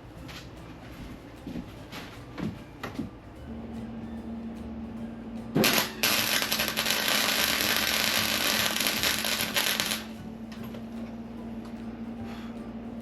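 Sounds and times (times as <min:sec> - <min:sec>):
steady low hum: 0:00.0 - 0:13.0
welding arc crackling and hissing: 0:05.6 - 0:10.1.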